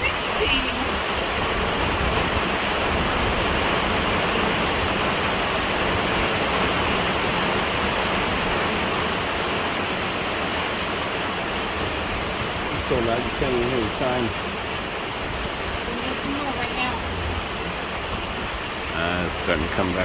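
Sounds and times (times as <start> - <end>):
heavy rain downpour: 0.0 - 20.0.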